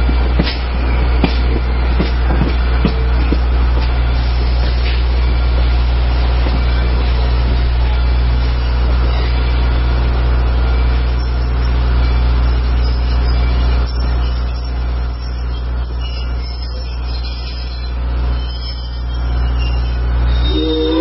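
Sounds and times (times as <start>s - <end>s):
wind buffeting the microphone: 0.0s - 9.8s
steam train rumbling: 0.0s - 21.0s.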